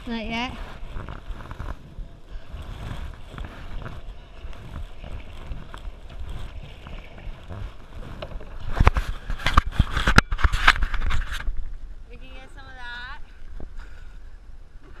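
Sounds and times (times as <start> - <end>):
choppy water splashing: 0.0 - 12.4
wind rumbling on microphone: 0.0 - 15.0
water sloshing around canoe: 0.1 - 11.9.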